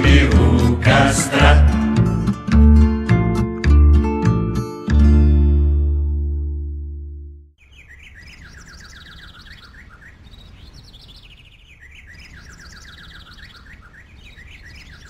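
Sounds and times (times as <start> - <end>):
songbird chirping trills: 7.6 - 15.0.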